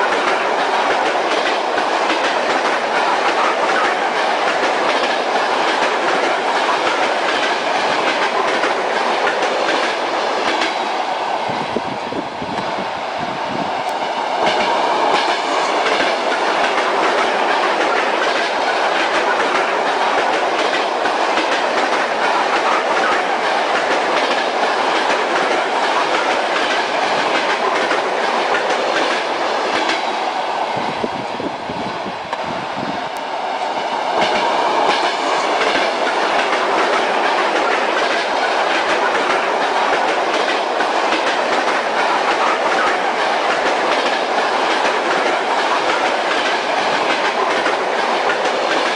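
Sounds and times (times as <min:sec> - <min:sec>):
train wheels clicking over rail joints: 0:00.0 - 0:11.0, 0:13.8 - 0:30.6, 0:33.2 - 0:48.9
train carriage rumbling: 0:00.0 - 0:48.9.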